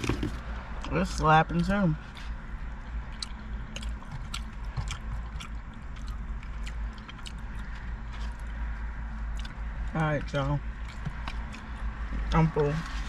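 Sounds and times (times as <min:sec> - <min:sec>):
steady low hum: 0:00.0 - 0:13.0
person chewing: 0:01.6 - 0:12.5.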